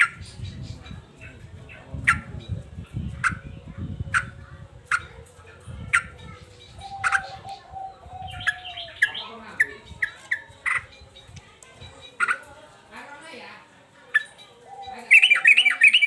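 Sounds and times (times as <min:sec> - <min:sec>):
bird calling agitatedly: 0:05.9 - 0:11.3, 0:12.0 - 0:12.5, 0:14.1 - 0:16.0.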